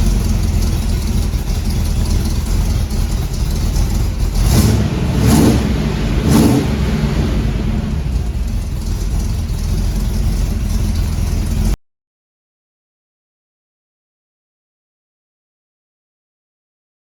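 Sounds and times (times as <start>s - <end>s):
engine running and revving: 0.0s - 11.8s.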